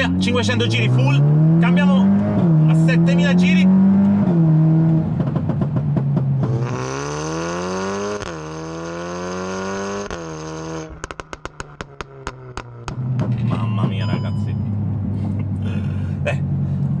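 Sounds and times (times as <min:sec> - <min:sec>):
car engine revving at full throttle: 0:00.0 - 0:17.0
exhaust pops and crackles: 0:04.9 - 0:06.8, 0:10.0 - 0:14.3.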